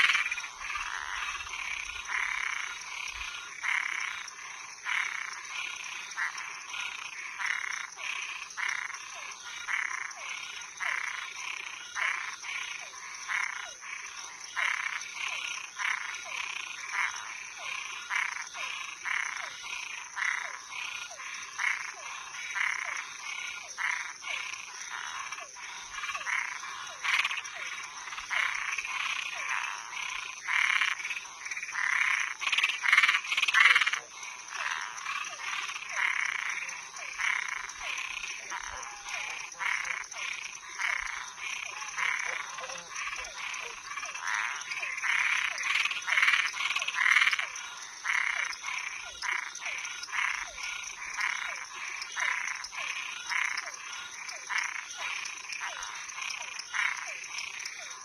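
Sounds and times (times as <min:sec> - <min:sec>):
frogs croaking: 0:00.0 - 0:58.0.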